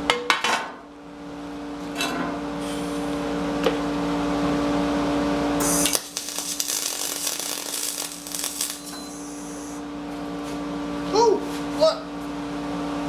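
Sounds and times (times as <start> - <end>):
welding arc hissing and crackling: 5.6 - 9.8
steady hum: 5.6 - 9.9.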